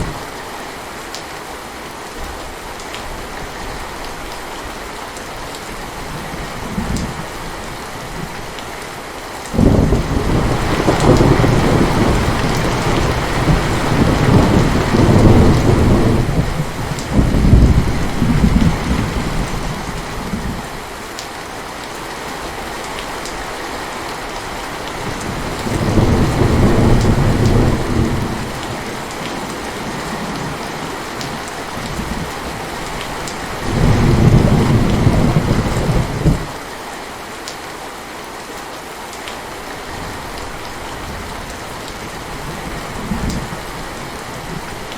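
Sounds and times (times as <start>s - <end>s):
heavy rain: 0.0s - 44.9s
thunder rumbling: 9.6s - 20.7s, 24.9s - 36.6s.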